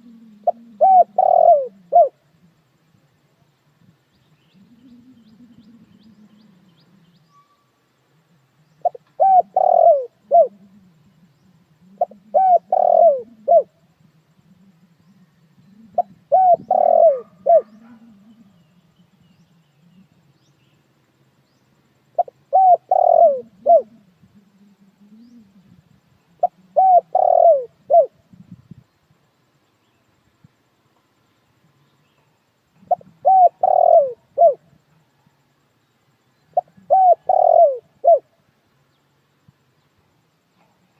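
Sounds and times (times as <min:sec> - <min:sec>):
dove cooing: 0:00.0 - 0:02.7, 0:04.3 - 0:07.5, 0:08.6 - 0:20.3, 0:22.1 - 0:28.8, 0:32.7 - 0:35.4, 0:36.4 - 0:38.4.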